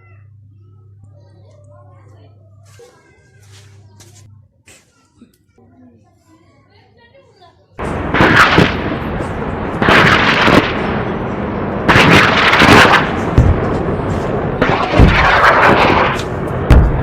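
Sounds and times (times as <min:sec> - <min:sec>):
rocket launch whoosh: 0:07.8 - 0:11.1, 0:11.8 - 0:17.0
explosions: 0:07.8 - 0:17.0.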